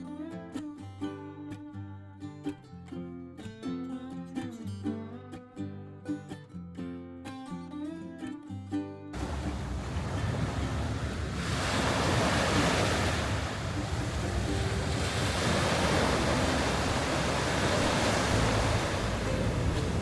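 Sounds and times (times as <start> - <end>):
surf washing onto beach: 9.2 - 20.0
wind on microphone: 9.2 - 20.0.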